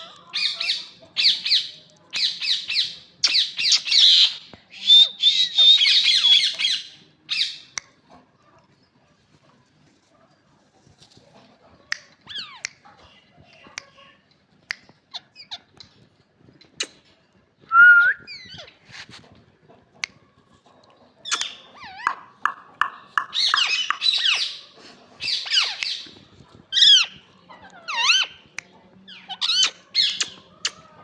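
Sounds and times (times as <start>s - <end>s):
parakeets screeching: 23.2s - 26.1s, 26.7s - 28.4s.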